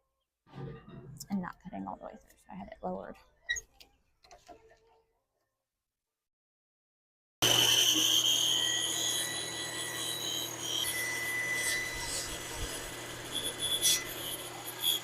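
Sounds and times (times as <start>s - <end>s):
electric saw cutting wood: 7.4s - 15.0s.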